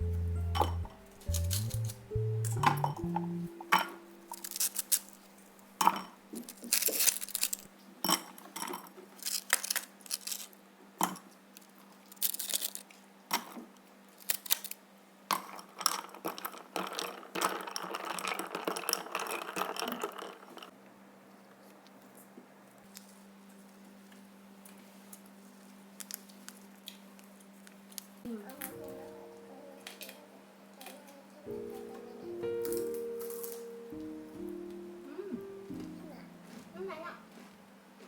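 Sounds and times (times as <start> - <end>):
steady low hum: 0.0 - 4.8
hard objects clinking and clattering: 0.6 - 5.2, 5.8 - 10.5, 15.3 - 20.7.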